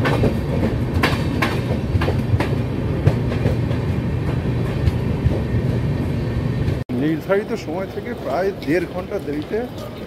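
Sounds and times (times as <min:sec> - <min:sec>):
wheels clicking over rail joints: 0:00.0 - 0:05.5
train rumble: 0:00.0 - 0:10.0.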